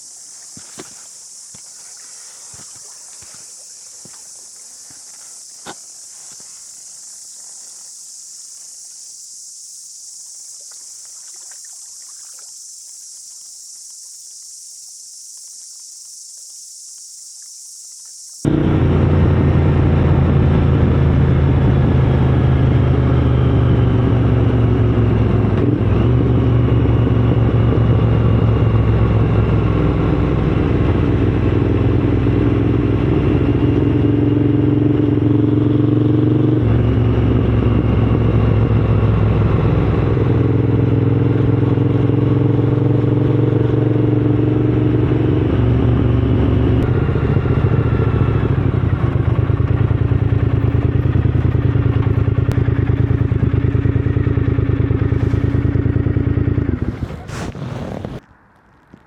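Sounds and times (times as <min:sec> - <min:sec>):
motorcycle engine running: 0:18.4 - 0:58.2.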